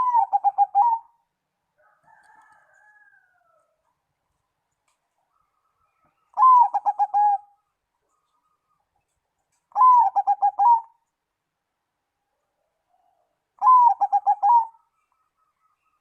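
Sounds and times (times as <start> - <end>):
dove cooing: 0.0 - 1.2, 6.3 - 7.6, 9.7 - 11.0, 13.1 - 14.9.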